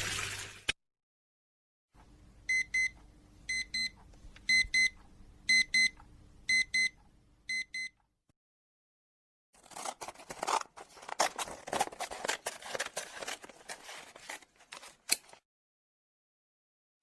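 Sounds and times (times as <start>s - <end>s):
electronic alarm beeping in pairs: 2.5s - 8.0s.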